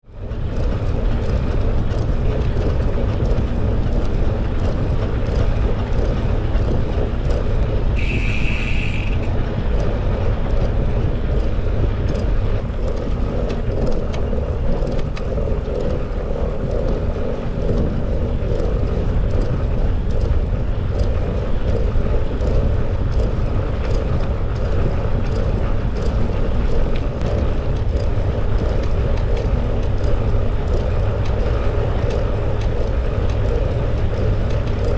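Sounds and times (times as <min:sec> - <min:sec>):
wind noise: 0:00.0 - 0:34.9
bicycle tyre rumble: 0:00.1 - 0:34.9
bike clicks and rattles: 0:00.2 - 0:07.7, 0:08.9 - 0:34.9
short high tone: 0:08.0 - 0:09.3.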